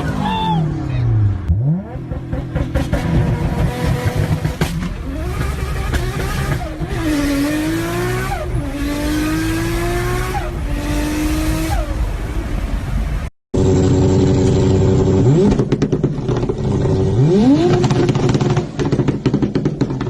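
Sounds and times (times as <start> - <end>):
car engine accelerating through gears: 1.2 - 12.0.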